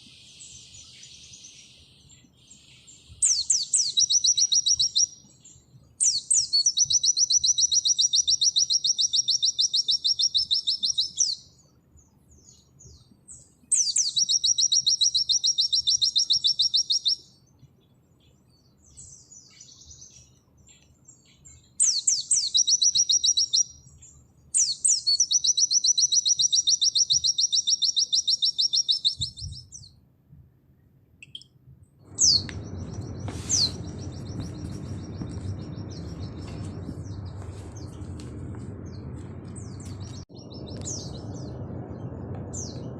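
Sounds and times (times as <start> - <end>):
bird singing rapid high notes: 2.8 - 11.5, 13.7 - 17.4, 21.6 - 23.9, 24.6 - 29.9, 31.2 - 38.1
steady low noise: 32.0 - 42.9.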